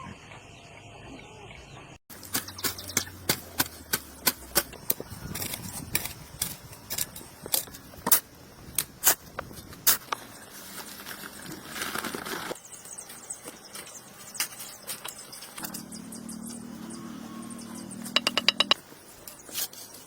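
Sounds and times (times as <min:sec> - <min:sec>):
sharp knocks: 0:18.1 - 0:18.8.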